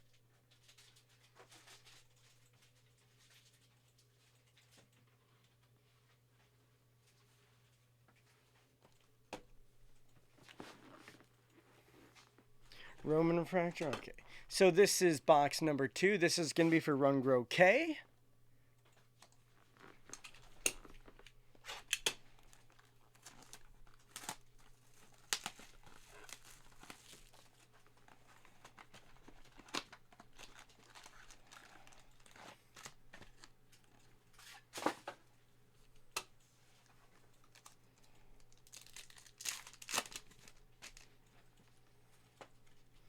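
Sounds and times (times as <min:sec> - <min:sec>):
packaging rustling and clicking: 0:19.2 - 0:35.2, 0:36.1 - 0:41.8
wrappers crinkling and tearing: 0:19.5 - 0:35.0, 0:36.8 - 0:41.8.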